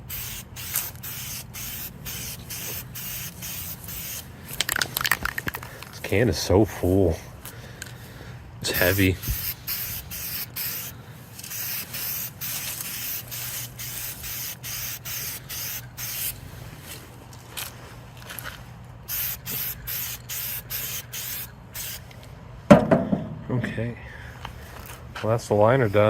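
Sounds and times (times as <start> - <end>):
spray can hissing bursts: 0.0 - 4.3, 8.7 - 16.4, 19.1 - 22.1.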